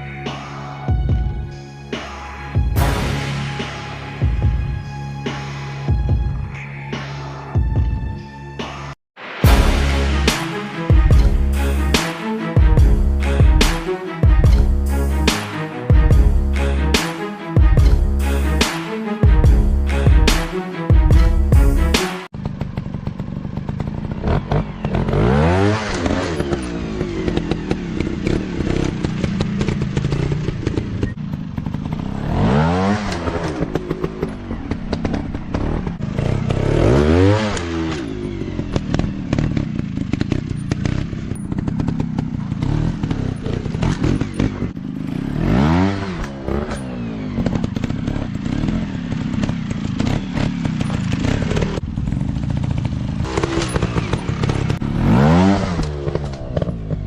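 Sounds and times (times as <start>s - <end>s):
dirt bike engine revving: 9.4s - 57.0s.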